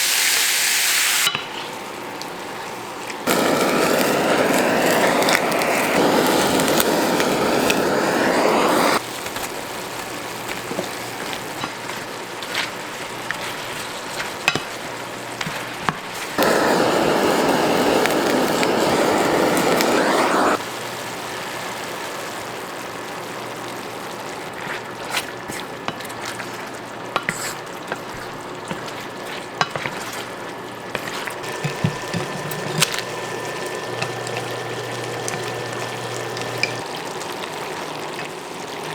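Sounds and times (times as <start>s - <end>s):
kitchen utensils clinking: 1.2s - 2.0s, 27.1s - 36.9s
water running from tap: 30.3s - 38.9s.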